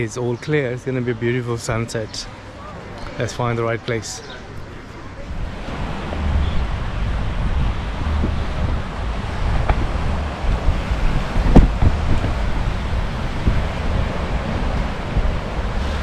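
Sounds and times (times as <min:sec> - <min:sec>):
wind buffeting microphone: 0:04.2 - 0:16.0
surf hissing on beach: 0:04.5 - 0:16.0.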